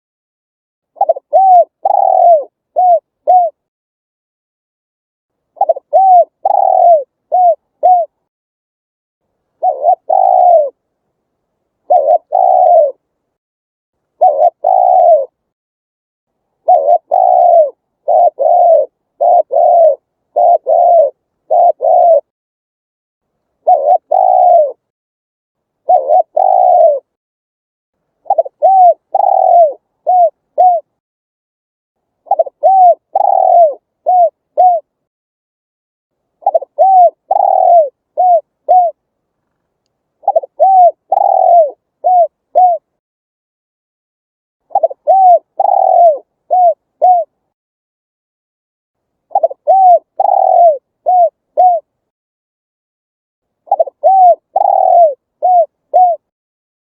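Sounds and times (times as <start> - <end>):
dove cooing: 1.0 - 3.7, 5.6 - 8.2, 9.6 - 10.8, 11.8 - 13.0, 14.2 - 15.4, 16.6 - 22.3, 23.6 - 24.9, 25.8 - 27.2, 28.2 - 31.0, 32.2 - 34.9, 36.4 - 39.0, 40.2 - 43.0, 44.7 - 47.4, 49.3 - 52.0, 53.7 - 56.3.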